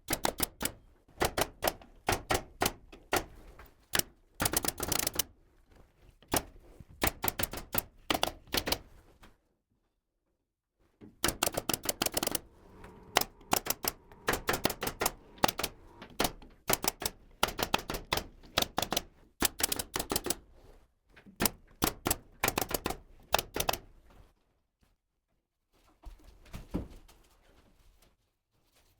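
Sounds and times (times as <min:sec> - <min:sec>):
pneumatic nail gun firing: 0:11.3 - 0:18.2.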